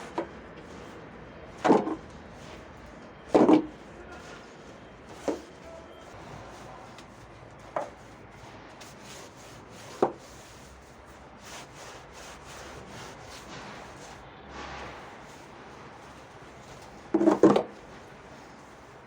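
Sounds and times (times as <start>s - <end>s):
rubbing strokes on a surface: 0.0s - 19.0s.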